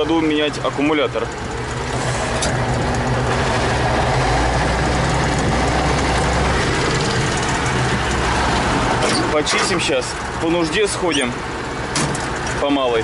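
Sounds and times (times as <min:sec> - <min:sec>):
diesel tractor engine running: 0:00.0 - 0:13.0
deep low drone: 0:01.5 - 0:09.0.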